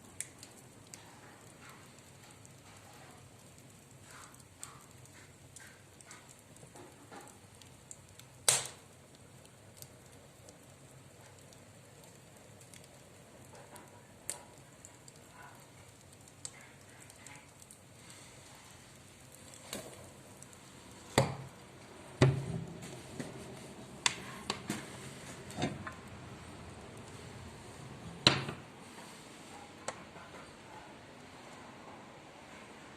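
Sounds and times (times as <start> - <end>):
wood fire crackling: 0.0 - 32.9.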